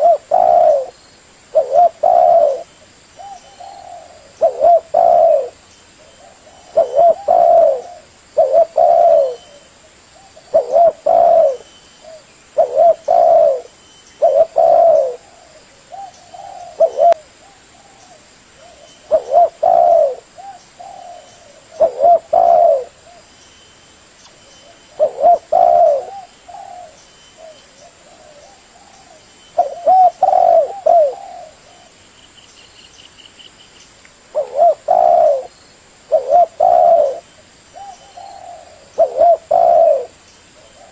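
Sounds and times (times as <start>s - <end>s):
dove cooing: 0.0s - 23.3s, 24.6s - 32.0s, 34.3s - 35.5s, 36.1s - 40.9s.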